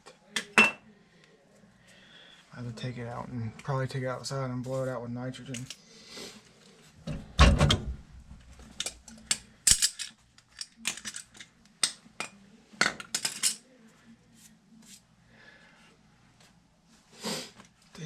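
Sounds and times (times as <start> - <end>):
metal tools clinking and knocking: 8.8 - 11.5.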